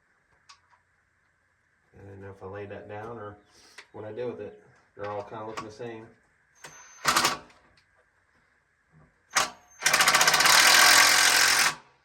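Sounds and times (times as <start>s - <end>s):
impact wrench hammering rattle: 6.7s - 7.5s, 9.3s - 11.9s.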